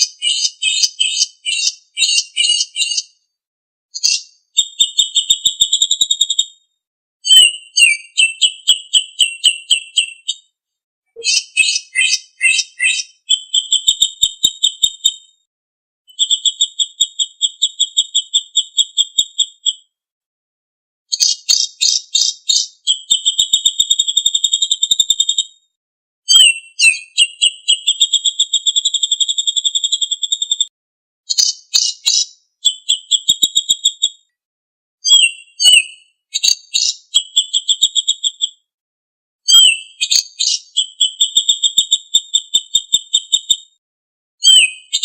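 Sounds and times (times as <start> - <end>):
songbird trilling: 0.0 - 3.1, 7.3 - 10.4, 11.2 - 14.2, 21.1 - 23.0, 31.3 - 33.9, 35.1 - 38.1, 39.5 - 41.4.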